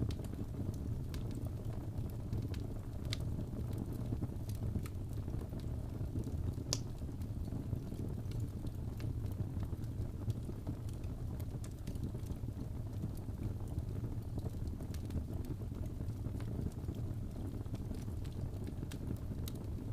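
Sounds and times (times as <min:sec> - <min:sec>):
fire crackling and popping: 0:00.0 - 0:19.9
fire rumbling in fireplace: 0:00.0 - 0:19.9.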